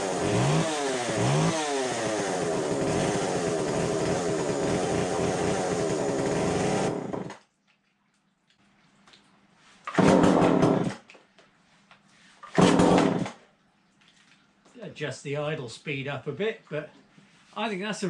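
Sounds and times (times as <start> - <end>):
chainsaw engine running: 0.0 - 7.4, 10.0 - 10.9.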